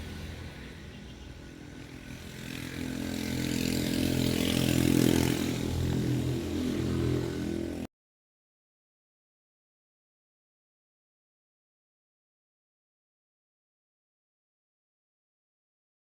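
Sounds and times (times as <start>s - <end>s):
vehicle engine running: 0.0s - 7.9s.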